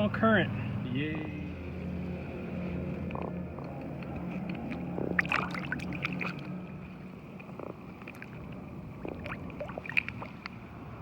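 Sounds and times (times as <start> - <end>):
steady low hum: 0.0 - 11.0
small splashes and clicks: 3.0 - 6.7, 7.3 - 10.6
water lapping against kayak hull: 3.1 - 11.0.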